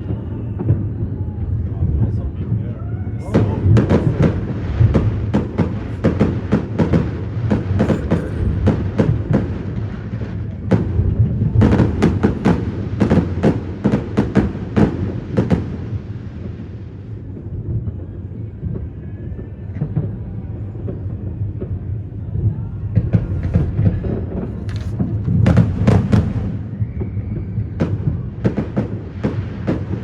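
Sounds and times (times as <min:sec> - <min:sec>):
low rumble: 0:00.0 - 0:13.0
fireworks bangs and pops: 0:03.2 - 0:30.0.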